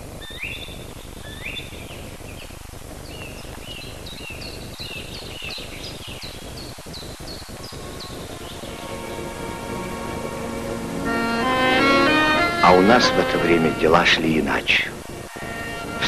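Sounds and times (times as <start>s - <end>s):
film soundtrack hiss: 0.0s - 16.0s
small bird chirping: 0.2s - 9.3s.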